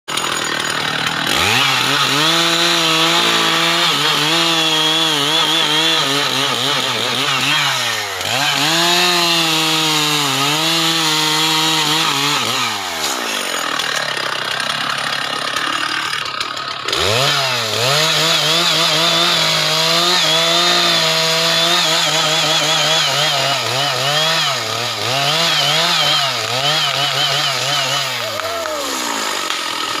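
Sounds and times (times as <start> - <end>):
chainsaw running at full throttle: 0.1 - 30.0.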